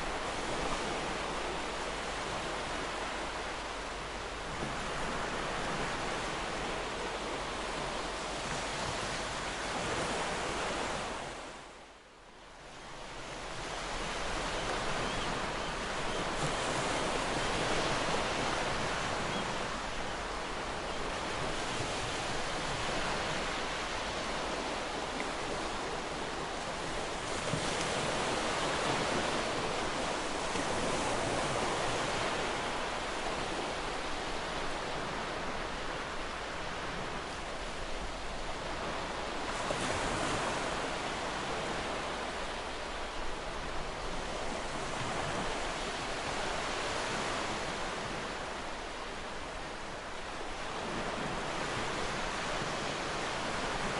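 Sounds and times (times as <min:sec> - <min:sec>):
ocean surf washing onto beach: 0:13.0 - 0:53.9.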